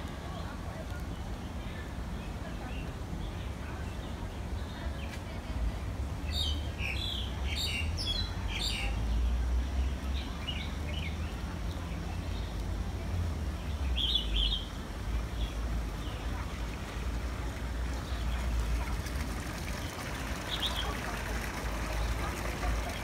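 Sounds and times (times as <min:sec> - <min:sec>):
small birds chirping: 0:06.2 - 0:23.0.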